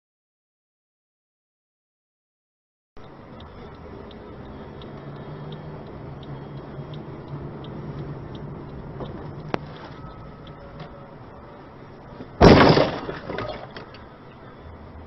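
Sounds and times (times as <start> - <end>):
car indicator ticking: 3.0 - 11.1
engine and road hum: 3.0 - 15.0.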